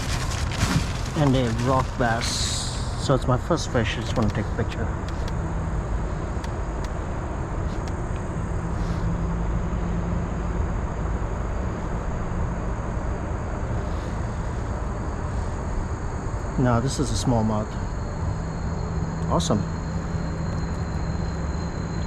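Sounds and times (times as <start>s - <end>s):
faint clicks: 3.9s - 5.5s.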